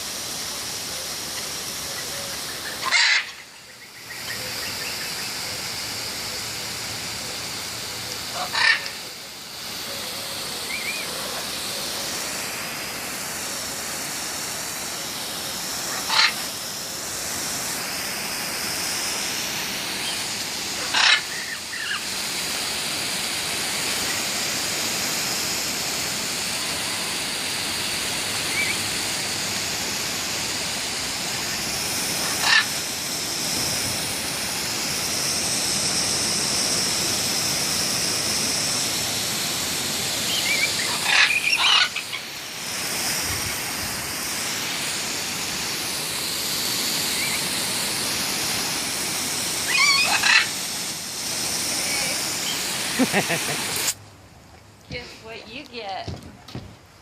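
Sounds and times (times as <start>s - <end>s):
running water spraying: 0.0s - 57.0s
bird calling: 0.9s - 6.6s, 7.2s - 12.1s, 15.8s - 16.5s, 20.0s - 22.1s, 28.4s - 28.9s, 31.4s - 32.8s, 40.2s - 42.3s, 47.0s - 47.5s, 49.6s - 50.6s, 51.8s - 53.6s.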